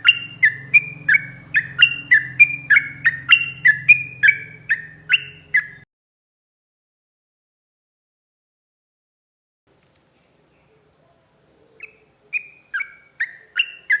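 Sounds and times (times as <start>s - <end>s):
bird calling sharp notes: 0.0s - 5.8s, 11.6s - 14.0s.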